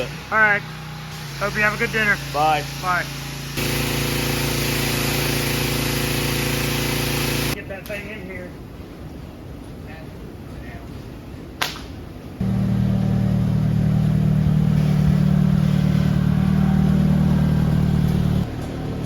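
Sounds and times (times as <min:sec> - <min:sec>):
engine droning: 0:12.4 - 0:19.0.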